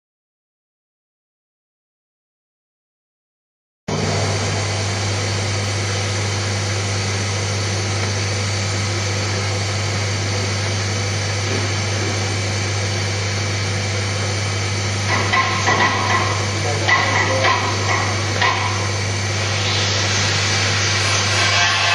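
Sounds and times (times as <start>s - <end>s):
foam cutter humming and hissing: 3.9s - 21.9s.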